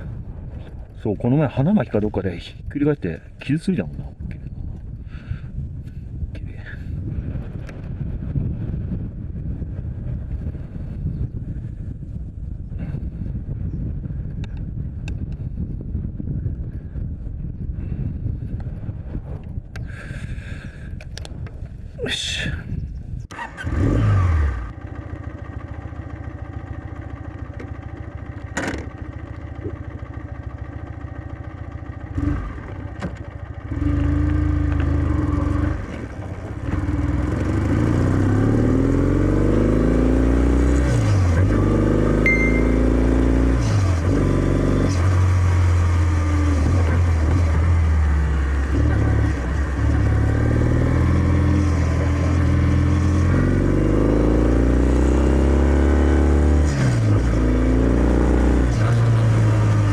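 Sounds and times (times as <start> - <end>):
motorcycle engine: 23.3 - 59.9.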